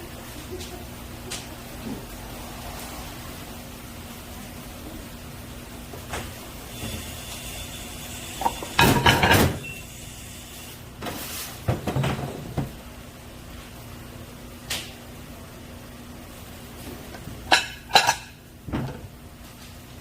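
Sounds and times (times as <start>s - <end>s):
steady background hum: 0.0s - 20.0s
kitchen knocks and rattles: 8.8s - 9.6s, 11.6s - 12.8s, 17.5s - 19.1s.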